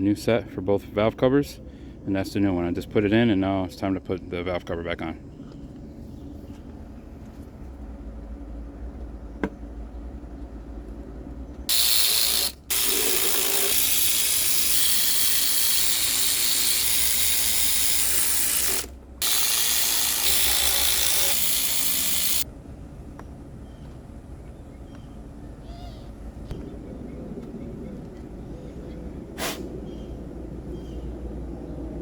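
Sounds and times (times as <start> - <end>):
power ratchet running bolts: 11.7 - 22.5.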